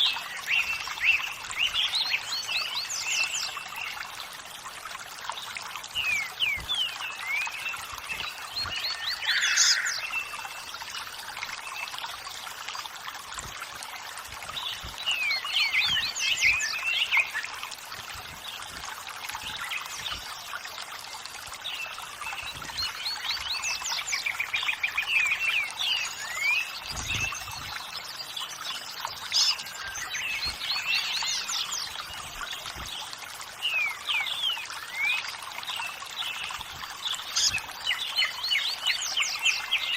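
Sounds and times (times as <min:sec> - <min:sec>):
running water: 0:00.0 - 0:39.9
birds chirping and trilling: 0:05.4 - 0:12.0, 0:14.5 - 0:18.7, 0:21.6 - 0:39.9.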